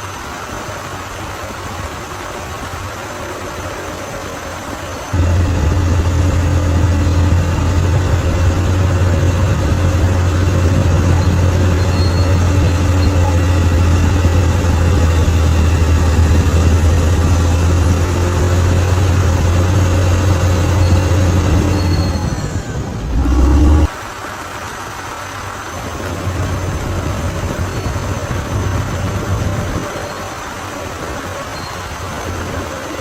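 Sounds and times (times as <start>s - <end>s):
bulldozer engine humming: 5.1s - 23.9s.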